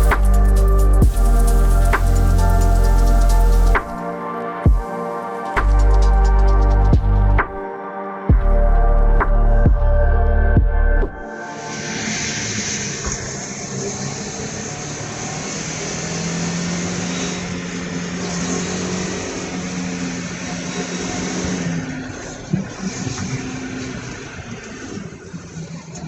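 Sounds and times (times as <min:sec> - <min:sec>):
car engine running: 0:00.0 - 0:04.0.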